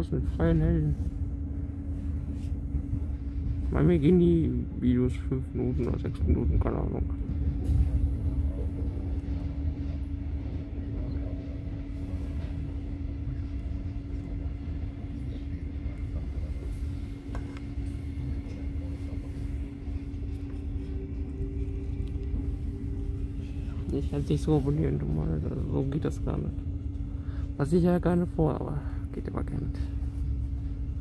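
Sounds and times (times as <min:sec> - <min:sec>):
higher hum: 0:00.0 - 0:31.0
steady hum: 0:00.0 - 0:31.0
train rumble: 0:00.0 - 0:31.0.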